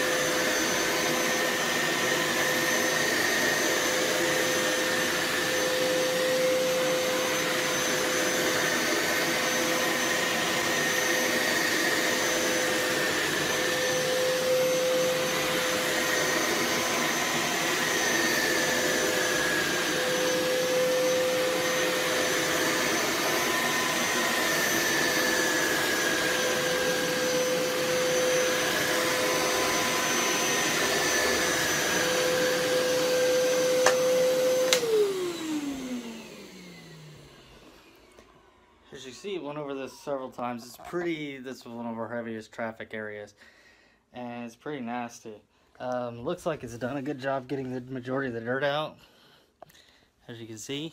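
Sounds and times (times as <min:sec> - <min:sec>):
carpet cleaner motor whine: 0:00.0 - 0:38.9
click: 0:34.7 - 0:34.9.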